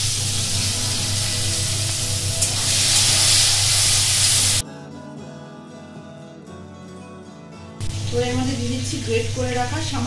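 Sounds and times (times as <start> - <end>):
vegetables sizzling in hot oil: 0.0 - 4.6
background music: 0.0 - 10.0.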